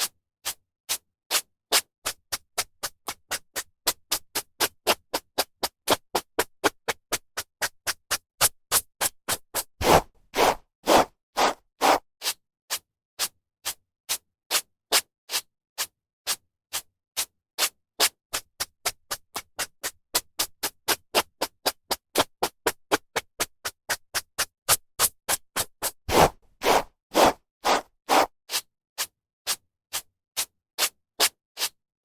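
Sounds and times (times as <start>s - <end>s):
brush swishing through hair: 26.1s - 28.3s.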